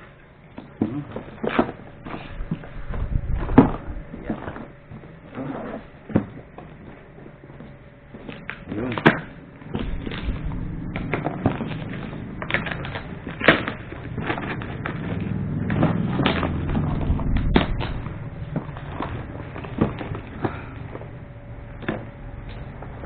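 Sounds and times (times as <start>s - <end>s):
plastic and cardboard crinkling: 0.6s - 16.4s.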